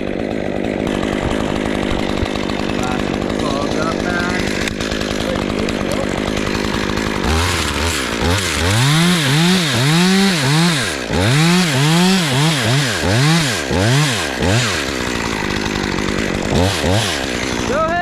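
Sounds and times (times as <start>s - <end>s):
chainsaw cutting wood: 0.0s - 18.0s.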